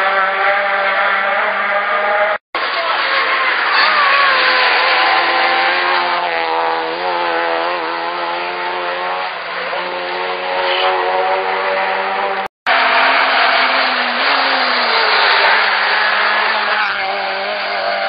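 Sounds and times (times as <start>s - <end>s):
race car engine at high revs: 0.0s - 18.0s.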